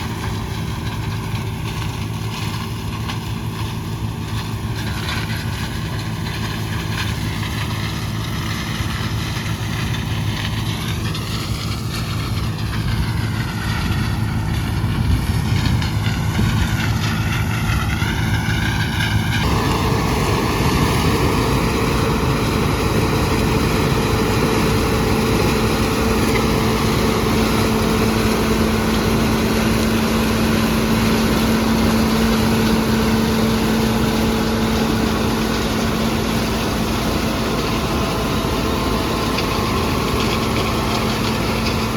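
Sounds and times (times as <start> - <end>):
combine harvester running: 0.0 - 41.9
steady hum: 19.3 - 41.9.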